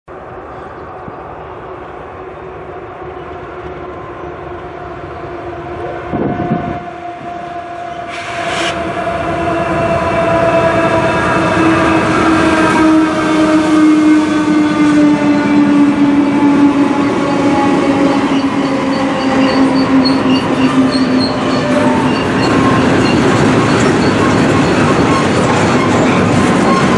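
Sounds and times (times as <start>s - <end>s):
locomotive engine droning: 0.1s - 26.9s
rail rumble: 0.1s - 26.9s
train clattering: 10.8s - 26.9s.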